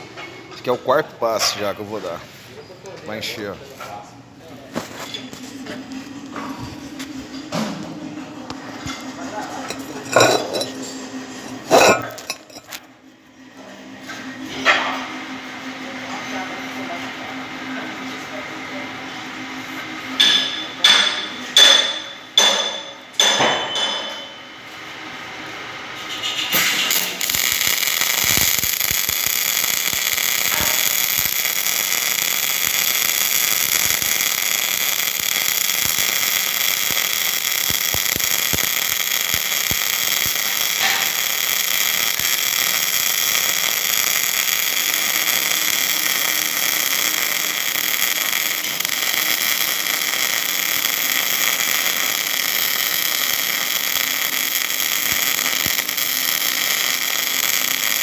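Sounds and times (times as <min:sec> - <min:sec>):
welding arc hissing and crackling: 0:04.7 - 0:07.4, 0:08.5 - 0:12.8, 0:19.7 - 0:58.0.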